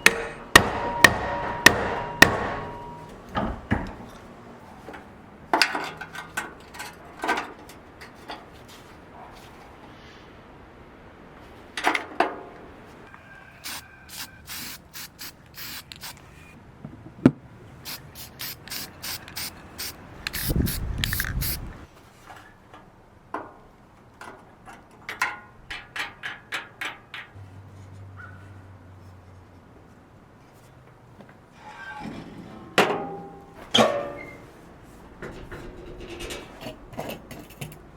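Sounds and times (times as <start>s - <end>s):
ratchet wrench clicking: 17.9s - 21.7s.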